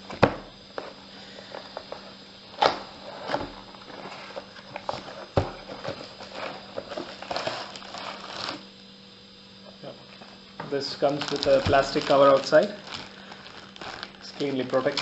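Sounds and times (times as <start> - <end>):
cardboard crinkling: 3.0 - 8.7, 10.8 - 15.0.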